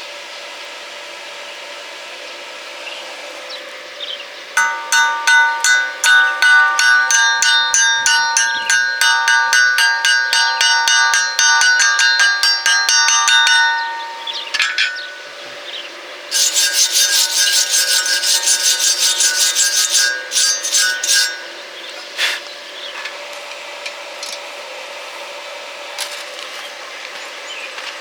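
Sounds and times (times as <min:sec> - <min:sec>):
fast scraping strokes: 0:16.3 - 0:21.5.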